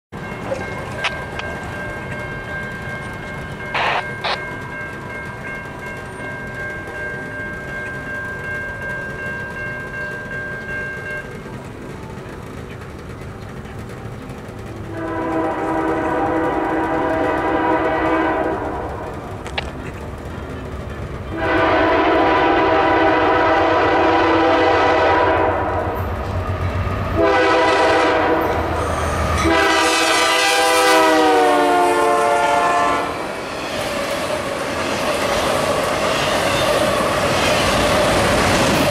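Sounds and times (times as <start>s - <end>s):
diesel locomotive rumble: 0.2s - 38.9s
locomotive horn blasts: 3.8s - 4.4s, 14.9s - 19.0s, 21.3s - 26.0s, 27.2s - 28.6s, 29.4s - 33.3s.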